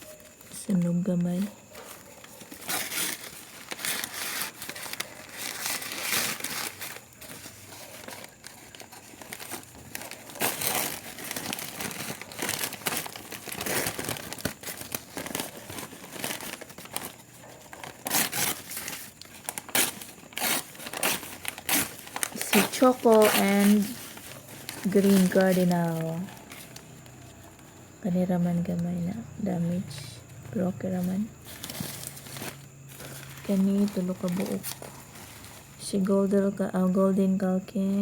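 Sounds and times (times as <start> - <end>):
packing material crinkling and tearing: 0.0 - 27.7, 31.4 - 35.8.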